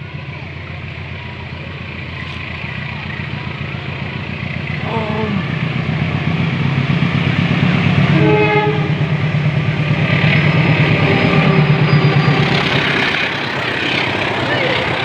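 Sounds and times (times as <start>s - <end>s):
train rumbling and rattling: 0.0s - 15.0s
train horn: 8.1s - 9.2s, 11.0s - 12.7s.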